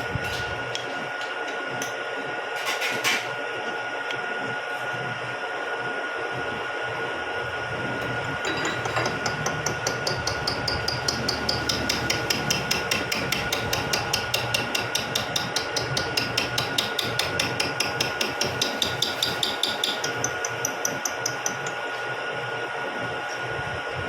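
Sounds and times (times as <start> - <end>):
machine whine: 0.0 - 15.0
milling cutter ticking: 8.5 - 21.8.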